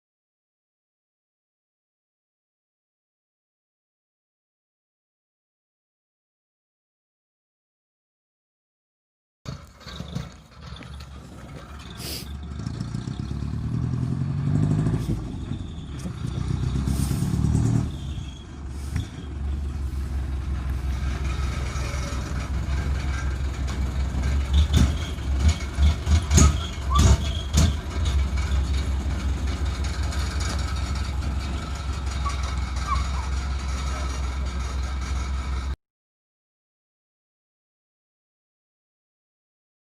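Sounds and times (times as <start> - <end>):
truck engine idle rumble: 9.5 - 35.8
truck engine revving: 9.5 - 35.8.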